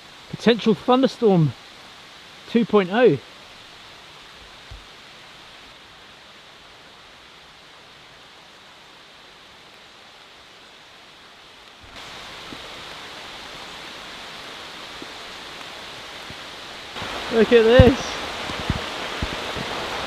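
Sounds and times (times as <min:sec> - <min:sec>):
steady rain in woodland: 0:00.0 - 0:20.0
faint raindrop ticks: 0:04.3 - 0:05.0, 0:14.9 - 0:20.0.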